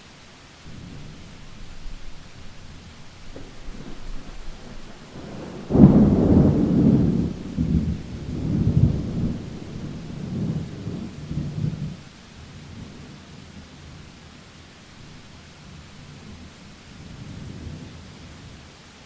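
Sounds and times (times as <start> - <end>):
steady rain: 0.0 - 19.0
thunder clap and rumble: 0.7 - 12.0.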